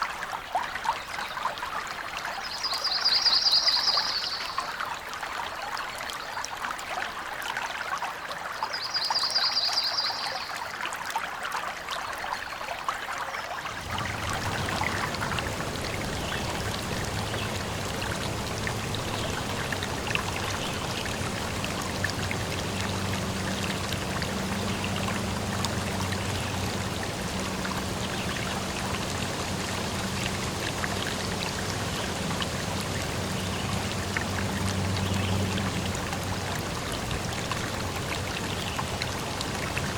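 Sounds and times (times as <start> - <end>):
stream water trickling: 0.0 - 39.9
low steady hum: 13.7 - 39.9.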